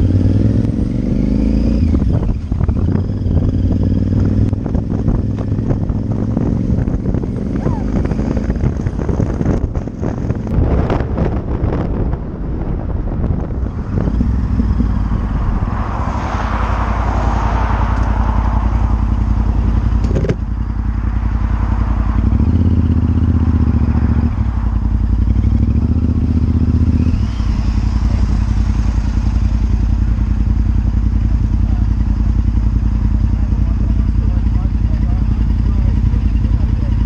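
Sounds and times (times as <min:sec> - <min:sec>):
motorcycle engine running: 0:00.0 - 0:37.0
wind rush: 0:01.7 - 0:30.9.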